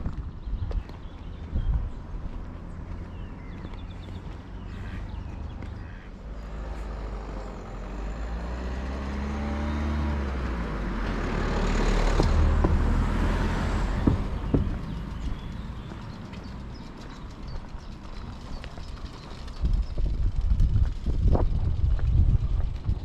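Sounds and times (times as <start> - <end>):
vehicle passing by: 1.2 - 23.0
sharp knocks: 14.0 - 15.1.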